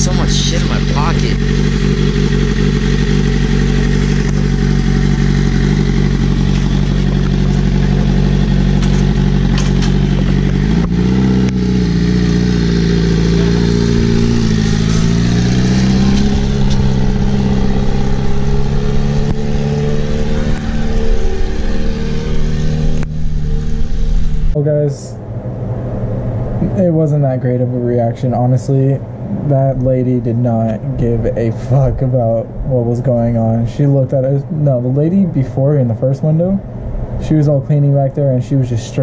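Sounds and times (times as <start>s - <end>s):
motorcycle engine idling and revving: 0.0s - 24.6s.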